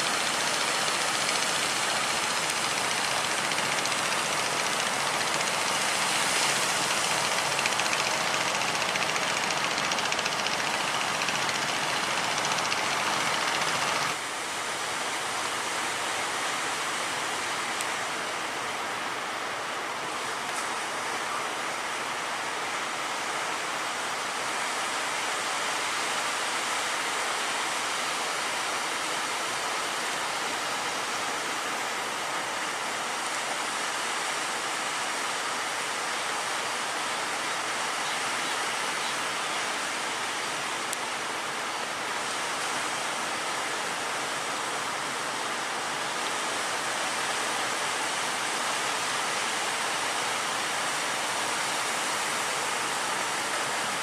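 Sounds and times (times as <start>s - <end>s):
roar of heavy surf: 0.0s - 14.2s.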